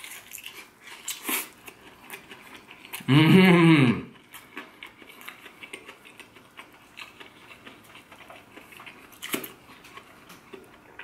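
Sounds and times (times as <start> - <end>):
chewing crispy chicken: 0.0 - 11.0.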